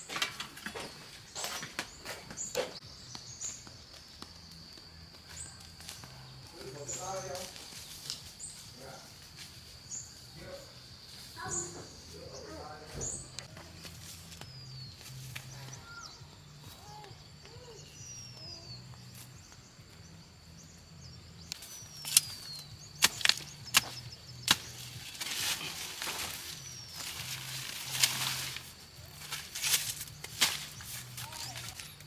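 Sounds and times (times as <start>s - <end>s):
birds chirping: 0.0s - 32.0s
knife chopping plant stems: 21.5s - 31.9s.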